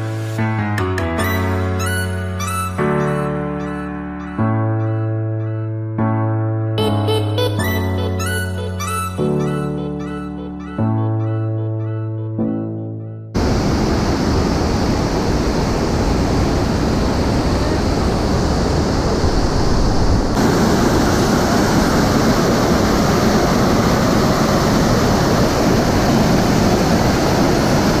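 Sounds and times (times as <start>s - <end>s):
waterfall roaring: 13.4s - 28.0s.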